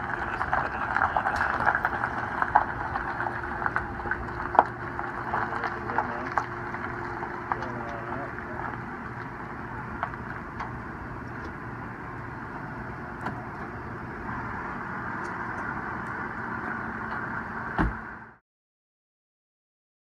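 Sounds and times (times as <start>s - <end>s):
limousine engine idling: 0.0s - 18.4s
loud thump: 17.7s - 18.0s.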